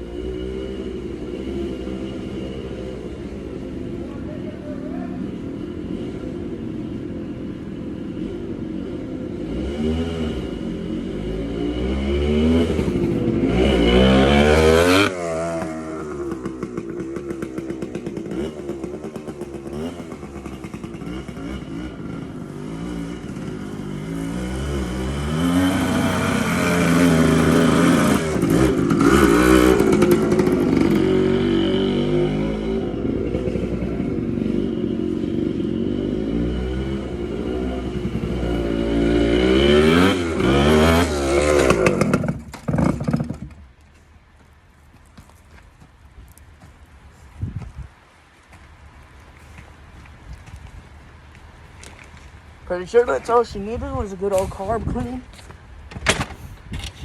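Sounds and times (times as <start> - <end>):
dirt bike engine revving: 0.0 - 3.9, 7.7 - 43.7
engine popping on closed throttle: 37.8 - 43.8.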